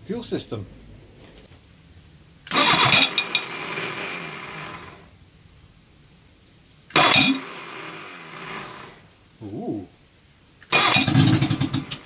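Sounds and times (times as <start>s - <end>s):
starter motor cranking engine: 2.5s - 5.0s, 6.9s - 9.0s, 10.7s - 12.0s.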